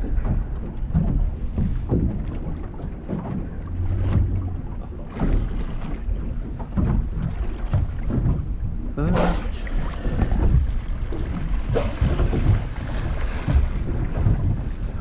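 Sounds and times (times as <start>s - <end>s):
wind buffeting microphone: 0.0s - 15.0s
brief low hum: 3.3s - 5.6s.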